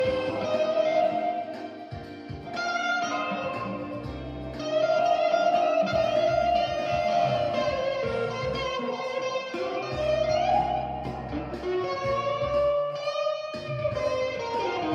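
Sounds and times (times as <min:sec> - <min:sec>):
low bass line: 0:00.0 - 0:05.1, 0:05.7 - 0:08.8, 0:09.8 - 0:12.9
electric guitar bending lead notes: 0:00.0 - 0:14.9.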